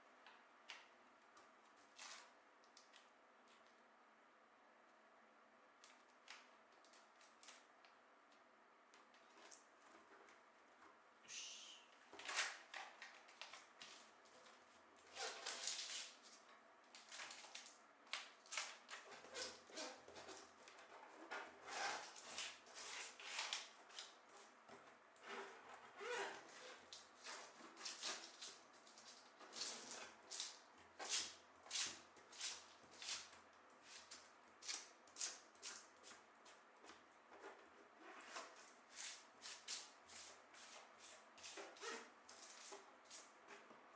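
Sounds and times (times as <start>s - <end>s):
rustling of objects: 5.8s - 43.9s.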